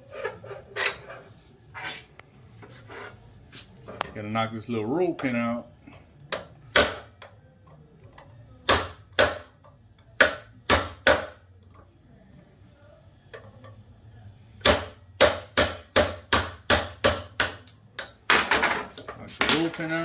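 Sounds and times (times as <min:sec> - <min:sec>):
hammer striking metal punch: 0:06.4 - 0:07.1, 0:08.6 - 0:09.6, 0:10.2 - 0:11.4, 0:14.6 - 0:18.6.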